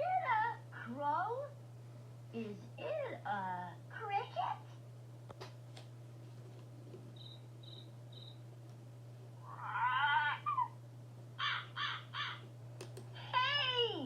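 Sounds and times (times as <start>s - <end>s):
steady low hum: 0.0s - 14.0s
bird cawing: 11.4s - 12.5s.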